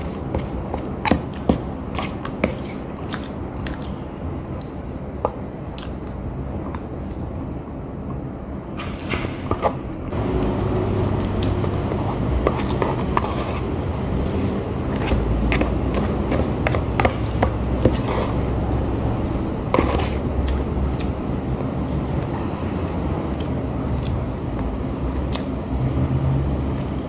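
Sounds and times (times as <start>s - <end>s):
chewing and mouth smacks: 1.2s - 4.9s, 5.6s - 6.2s, 16.7s - 25.6s.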